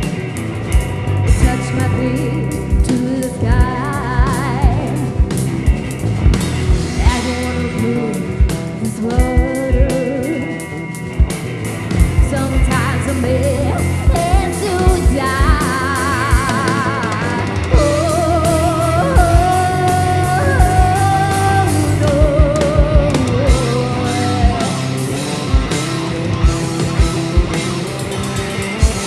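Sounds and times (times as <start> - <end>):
electric guitar: 0.0 - 29.0
person singing: 1.3 - 5.2, 6.9 - 10.7, 12.2 - 25.7.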